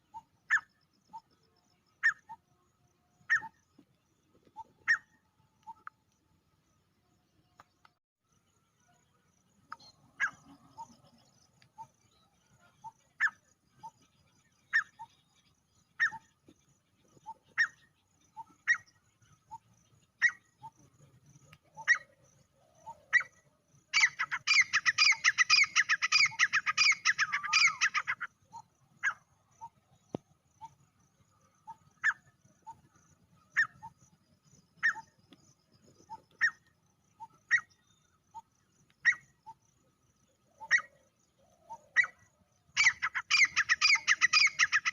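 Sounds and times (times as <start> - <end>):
francolin calling: 3.2 - 3.7, 4.6 - 6.0, 9.7 - 16.4, 21.5 - 32.9, 34.8 - 44.9.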